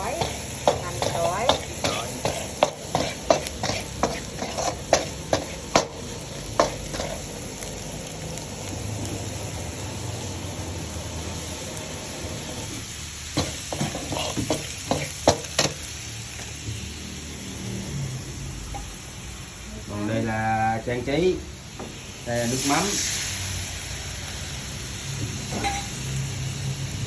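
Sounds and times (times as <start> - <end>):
squid sizzling in a pan: 0.0 - 27.0
utensil clacking against pan: 0.2 - 6.0.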